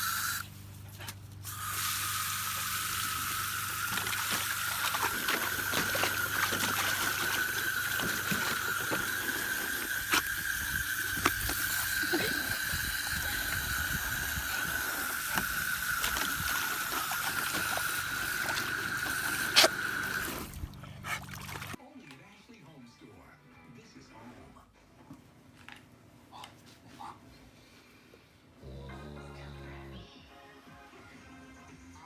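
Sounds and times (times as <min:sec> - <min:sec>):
water running and splashing: 0:01.5 - 0:21.8.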